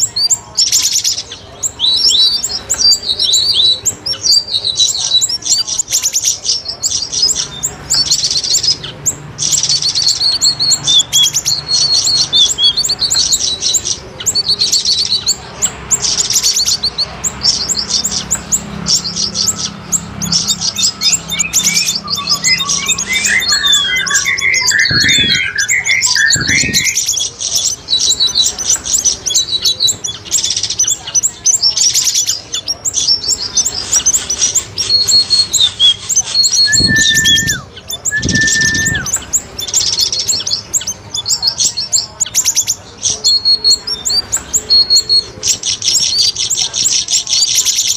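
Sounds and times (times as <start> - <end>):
birds chirping trills: 0.0 - 47.9
bubbling bird notes: 7.0 - 42.2
short held whistles: 20.6 - 27.2, 34.9 - 39.3.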